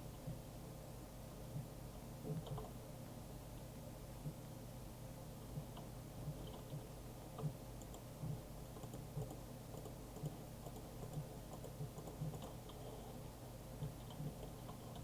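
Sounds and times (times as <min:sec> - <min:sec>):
small mechanism humming: 0:05.2 - 0:15.0.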